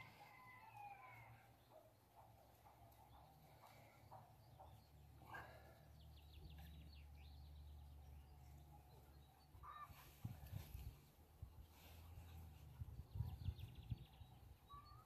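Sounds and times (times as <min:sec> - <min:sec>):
bird chirps and twittering: 0:12.3 - 0:15.0.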